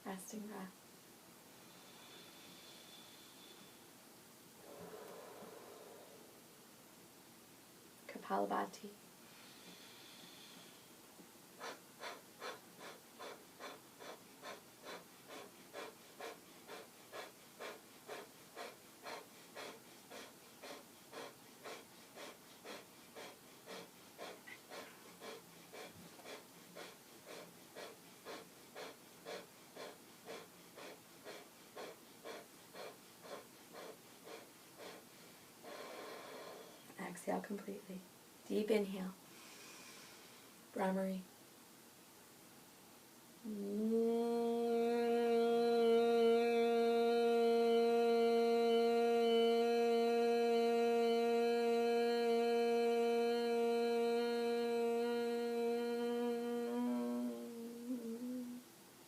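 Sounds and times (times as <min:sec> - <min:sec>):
forceful nasal exhalations: 0:04.6 - 0:06.4, 0:11.6 - 0:36.9.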